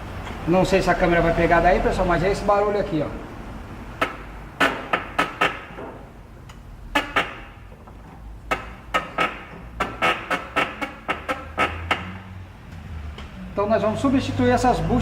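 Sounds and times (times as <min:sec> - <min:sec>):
man talking: 0:00.5 - 0:03.2, 0:13.6 - 0:15.0
suspension clunking: 0:03.6 - 0:14.1.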